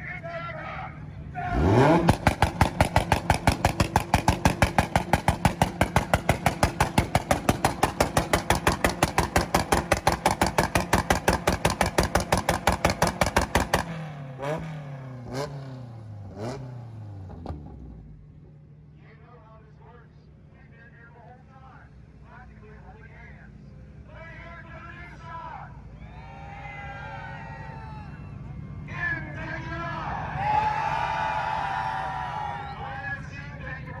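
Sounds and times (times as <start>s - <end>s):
car engine revs blipped: 1.3s - 18.6s
car engine popping on rev limiter: 1.6s - 15.6s, 16.4s - 18.2s.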